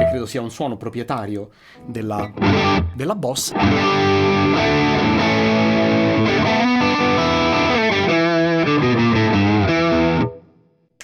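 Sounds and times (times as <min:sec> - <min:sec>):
distorted electric guitar: 0:02.2 - 0:02.9, 0:03.6 - 0:10.4.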